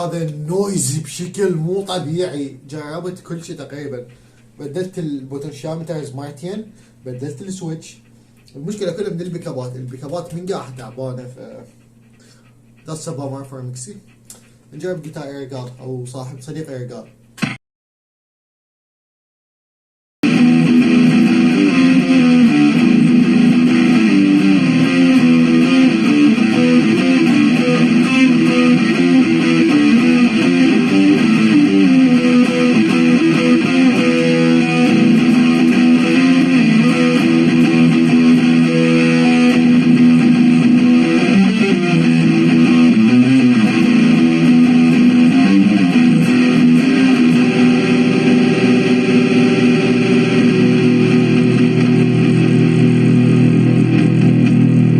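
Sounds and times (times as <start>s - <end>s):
electric guitar playing: 20.2s - 54.9s.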